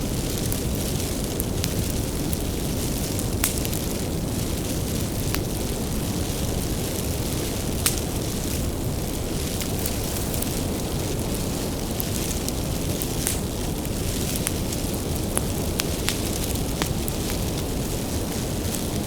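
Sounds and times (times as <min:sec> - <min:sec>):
fire crackles and pops: 0:00.0 - 0:19.0
wood fire rumbling: 0:00.0 - 0:19.0.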